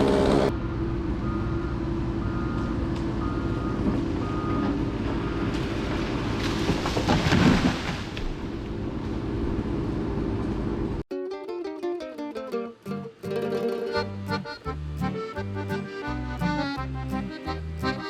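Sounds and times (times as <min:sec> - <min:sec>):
heavy diesel engine running: 0:00.0 - 0:06.4, 0:13.3 - 0:18.0
backup alarm beeping: 0:01.2 - 0:05.5.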